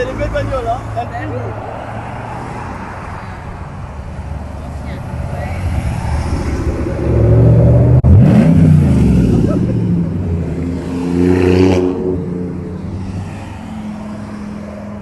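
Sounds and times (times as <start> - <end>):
vehicle engine accelerating: 4.8 - 14.6.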